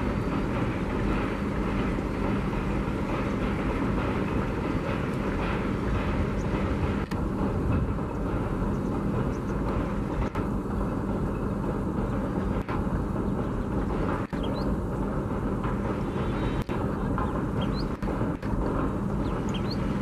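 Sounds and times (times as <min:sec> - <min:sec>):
train wheels rumbling on bridge: 0:00.0 - 0:20.0.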